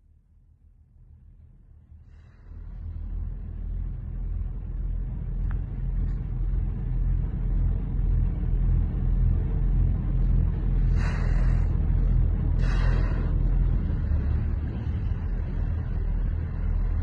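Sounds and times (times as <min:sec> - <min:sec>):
boat engine rumbling: 0:02.1 - 0:17.0.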